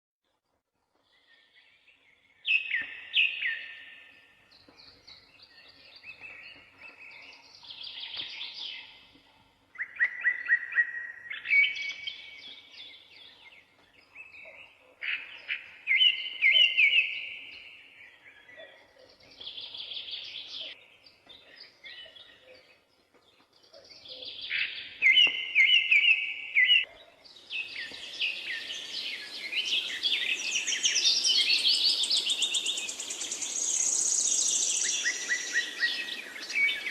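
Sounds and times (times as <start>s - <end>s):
songbird warbling: 27.5s - 36.9s.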